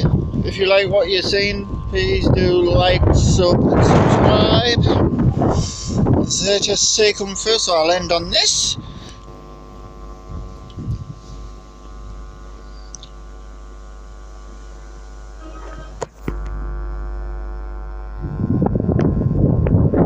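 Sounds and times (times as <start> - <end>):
rough rumble: 0.0 - 12.5
steady tones: 0.0 - 19.4
steady low hum: 0.0 - 20.0.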